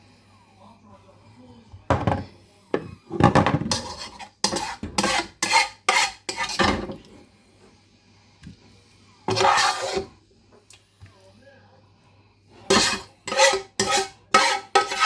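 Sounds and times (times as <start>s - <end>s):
spoon scraping and clinking on pan: 3.3s - 7.0s, 9.3s - 10.1s, 12.7s - 15.0s.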